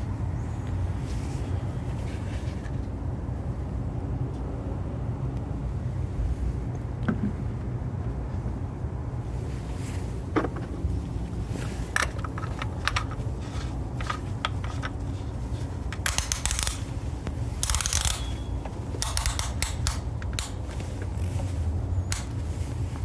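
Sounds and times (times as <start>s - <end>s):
steady low rumble: 0.0s - 23.0s
rustling scrapes: 1.0s - 2.9s, 9.4s - 18.6s
handling clicks and knocks: 10.3s - 23.0s.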